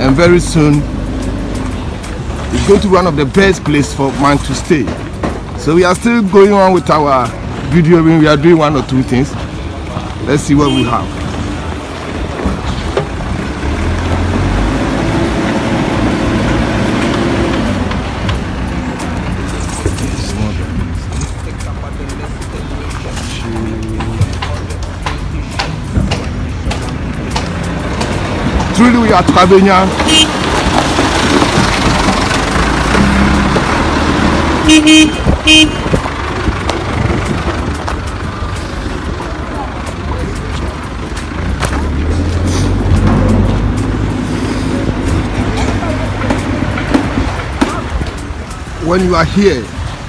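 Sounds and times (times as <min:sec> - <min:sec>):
heavy engine rumbling: 0:00.0 - 0:50.0
vehicle horn honking: 0:10.5 - 0:11.1, 0:29.9 - 0:30.5, 0:34.6 - 0:36.0.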